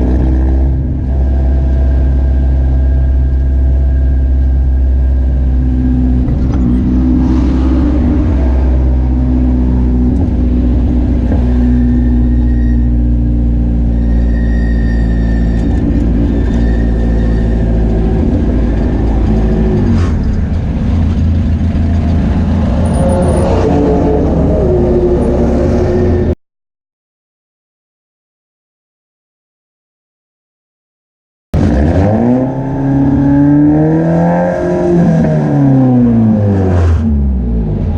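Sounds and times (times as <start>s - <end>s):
car engine running on track: 0.0s - 26.4s.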